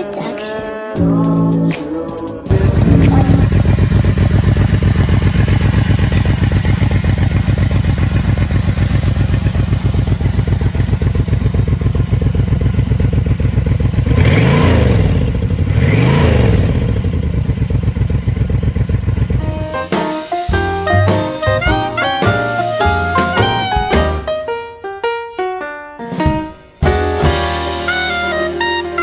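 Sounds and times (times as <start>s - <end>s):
motorcycle engine idling and revving: 2.5s - 19.5s.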